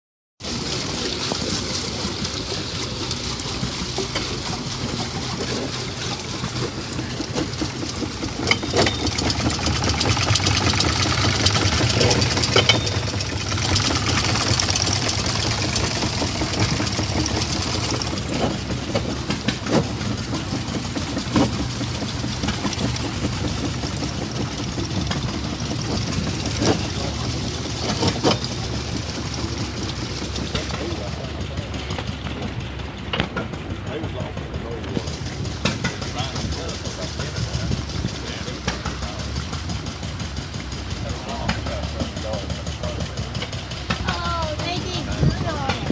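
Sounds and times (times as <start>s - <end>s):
model machinery humming: 0.5s - 45.9s.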